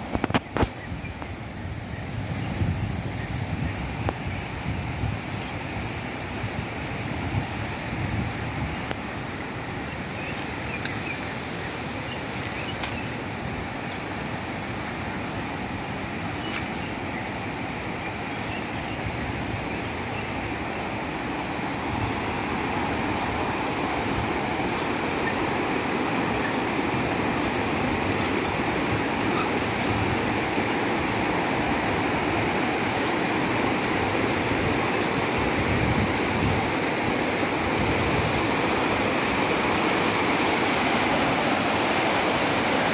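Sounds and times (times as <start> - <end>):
water pouring down waterfall: 20.5 - 42.9.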